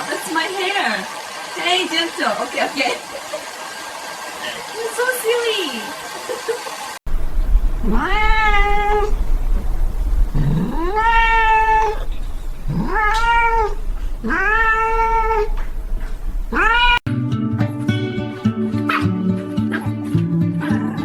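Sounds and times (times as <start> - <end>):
low steady hum: 7.1 - 17.0
cat meowing: 7.8 - 9.2, 10.4 - 15.7, 16.5 - 17.0.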